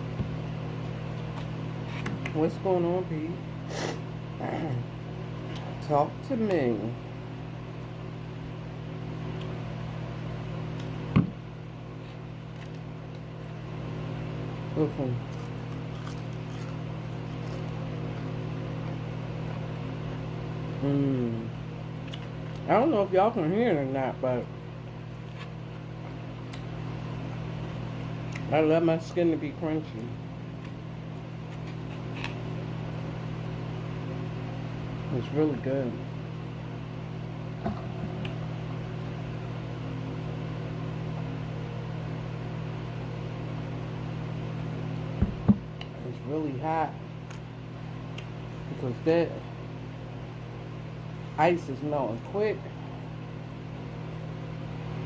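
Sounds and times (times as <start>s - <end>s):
steady low hum: 0.0s - 55.0s
chewing crispy chicken skin: 15.2s - 19.6s.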